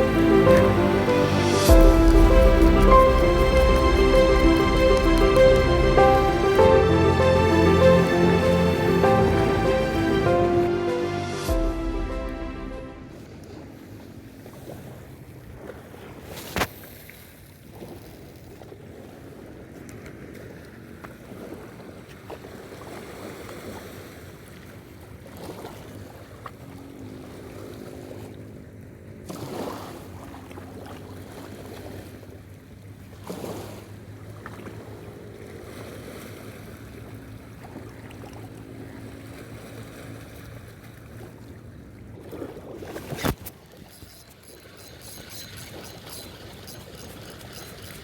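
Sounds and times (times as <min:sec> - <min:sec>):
low motor hum: 0:00.0 - 0:13.3
moving water: 0:00.0 - 0:48.0.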